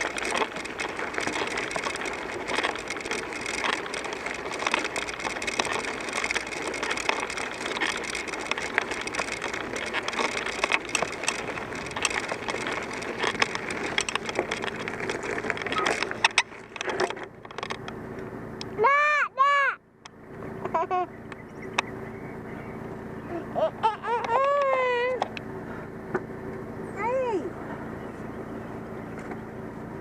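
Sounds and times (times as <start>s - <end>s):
bicycle tyre noise: 0.0s - 18.1s
small clicks and rattles: 0.0s - 18.7s.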